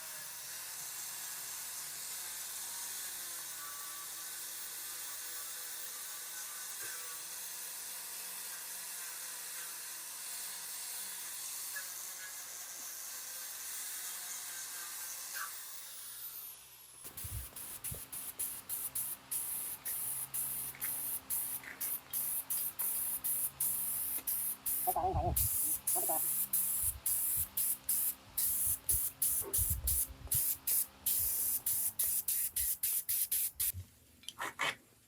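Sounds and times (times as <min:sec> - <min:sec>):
spray paint hissing: 0:17.0 - 0:33.8.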